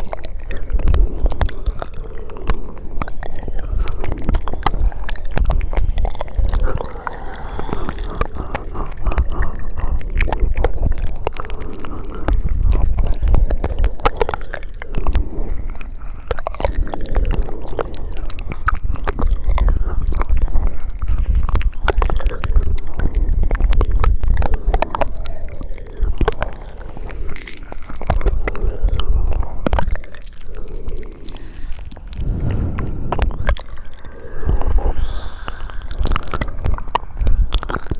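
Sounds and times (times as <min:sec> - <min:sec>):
wet mouth clicks and smacks: 0:00.0 - 0:37.9
low rumble: 0:30.8 - 0:37.6.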